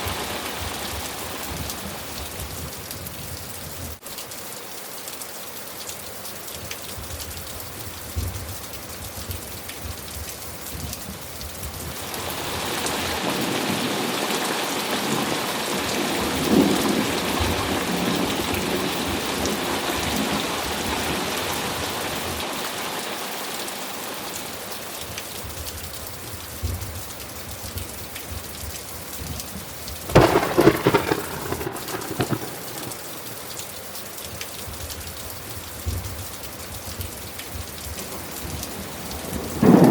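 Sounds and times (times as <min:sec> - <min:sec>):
steady rain falling: 0:00.0 - 0:39.9
rolling thunder rumble: 0:30.1 - 0:33.2, 0:39.3 - 0:39.9
sharp crack of thunder: 0:30.1 - 0:33.3, 0:39.3 - 0:39.9.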